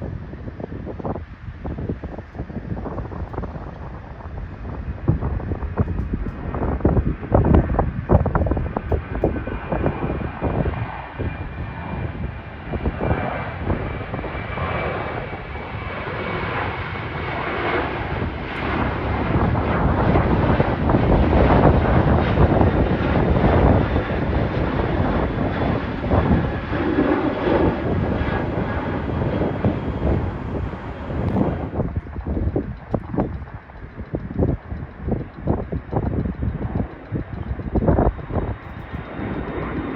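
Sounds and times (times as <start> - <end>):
jet engine roar: 0.0 - 39.9
wind buffeting microphone: 0.0 - 39.9.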